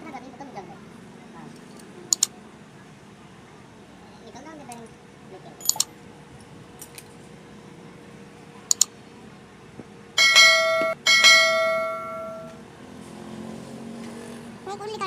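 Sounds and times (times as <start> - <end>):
small clicks: 1.6 - 2.3, 8.7 - 8.9
metallic bell-like ring: 10.2 - 12.6.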